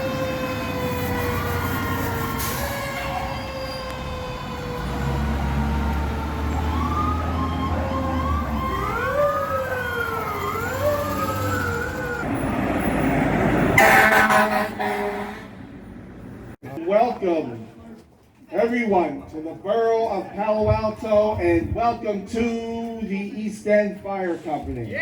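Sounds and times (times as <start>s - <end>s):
falling mechanical siren wail: 0.0s - 15.2s
siren sweeping up and down: 0.0s - 15.5s
truck engine rumble: 0.0s - 16.6s
loud horn blast: 13.7s - 15.7s.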